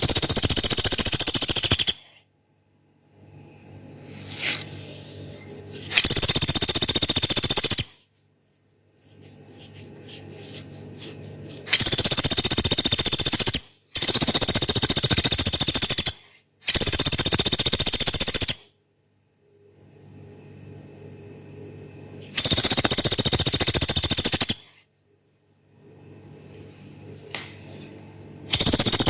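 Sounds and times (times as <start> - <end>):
woodpecker rattling calls: 0.0 - 2.1, 6.0 - 8.0, 11.7 - 18.6, 22.4 - 24.7, 28.5 - 29.0
faint low hum: 0.0 - 16.7, 18.8 - 23.7, 24.6 - 29.0.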